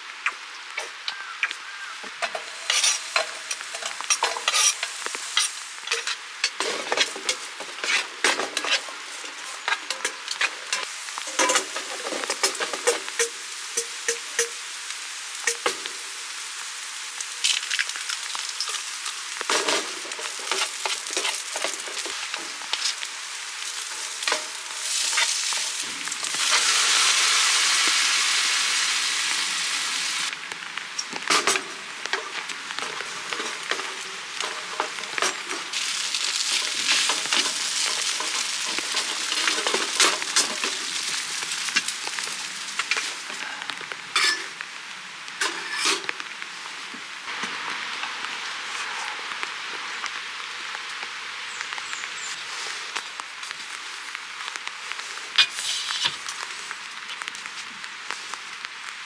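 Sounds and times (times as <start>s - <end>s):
crackles and pops: 0.0s - 27.2s, 30.2s - 59.0s
onion sizzling in a pan: 0.0s - 59.0s
loud hiss: 12.4s - 30.4s, 51.9s - 57.0s.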